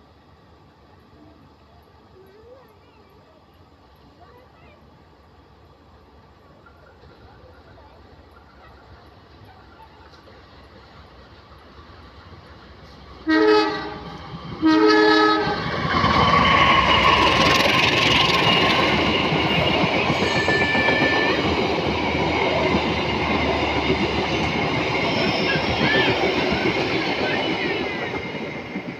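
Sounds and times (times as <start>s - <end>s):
train wheels rumbling on rail: 0.0s - 28.9s
train horn blasts: 13.2s - 15.7s, 20.1s - 21.4s
wheel squeal: 19.6s - 21.4s.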